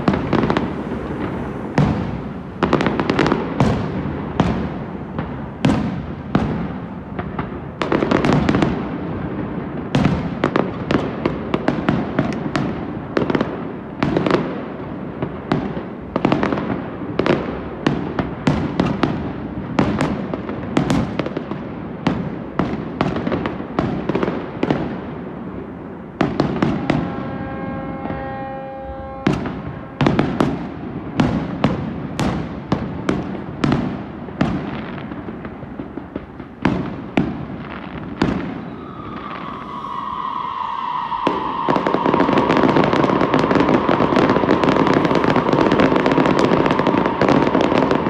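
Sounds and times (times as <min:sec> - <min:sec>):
aerial fireworks bursting: 0:00.0 - 0:28.3, 0:29.2 - 0:48.0.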